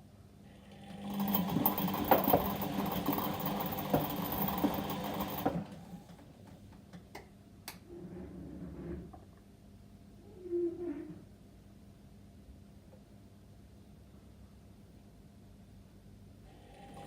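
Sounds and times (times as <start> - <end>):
washing machine drum humming: 0.8 - 6.2.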